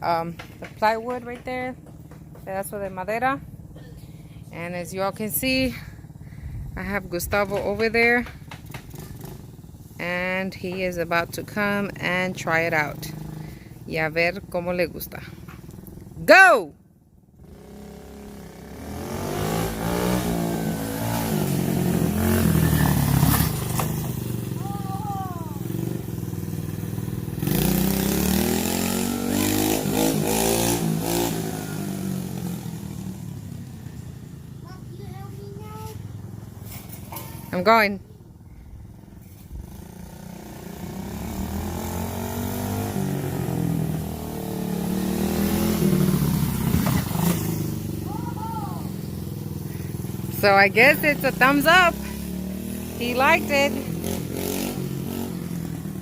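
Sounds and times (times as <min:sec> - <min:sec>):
dirt bike engine revving: 0:03.4 - 0:14.4, 0:17.4 - 0:34.0, 0:39.6 - 0:56.0.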